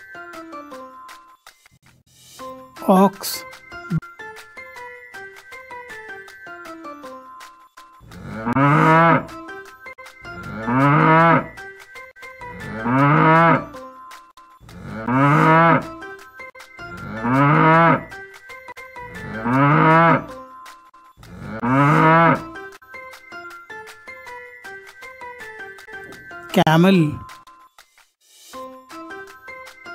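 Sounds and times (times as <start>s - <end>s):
light background music: 0.0s - 29.9s
cattle mooing: 8.1s - 9.3s, 10.4s - 11.5s, 12.6s - 13.7s, 14.7s - 15.9s, 17.0s - 18.1s, 19.2s - 20.3s, 21.3s - 22.5s.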